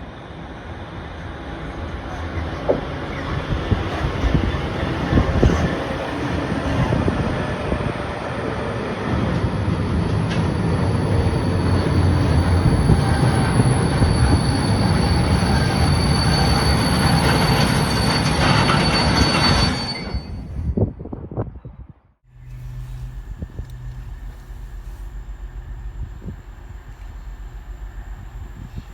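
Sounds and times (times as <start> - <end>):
freight wagons rattling over track: 2.2 - 20.6
high-pitched wheel squeal: 9.1 - 20.8.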